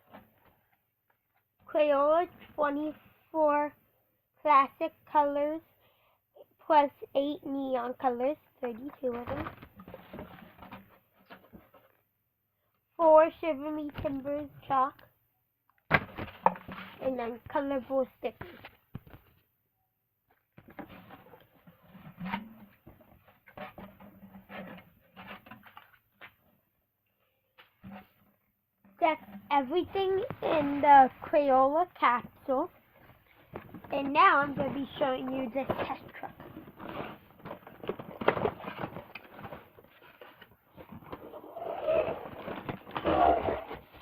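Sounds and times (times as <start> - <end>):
toy and packaging handling noise: 8.6 - 12.0, 29.0 - 44.0.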